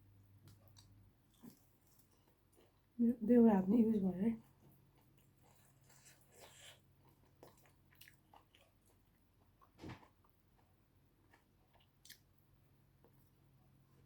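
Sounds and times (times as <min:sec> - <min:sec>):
person chewing: 0:00.5 - 0:02.9, 0:04.8 - 0:12.3.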